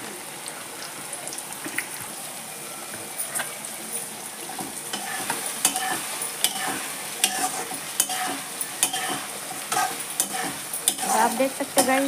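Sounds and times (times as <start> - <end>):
food sizzling in hot oil: 0.0 - 12.0
metal spoon turning food: 4.5 - 12.0.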